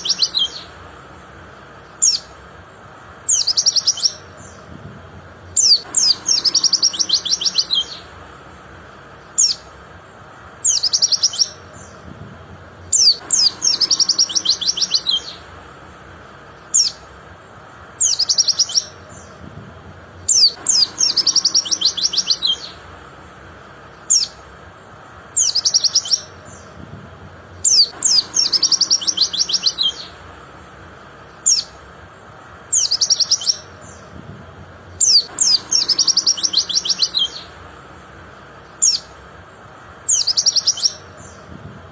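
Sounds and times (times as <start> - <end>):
bird call and high trill: 0.0 - 0.8, 1.9 - 2.4, 3.2 - 4.6, 5.6 - 8.2, 9.3 - 9.7, 10.6 - 12.0, 12.9 - 15.5, 16.6 - 17.1, 18.0 - 19.3, 20.3 - 22.9, 23.9 - 24.4, 25.4 - 26.7, 27.6 - 30.2, 31.3 - 31.8, 32.7 - 34.0, 35.0 - 37.6, 38.6 - 39.2, 40.0 - 41.4.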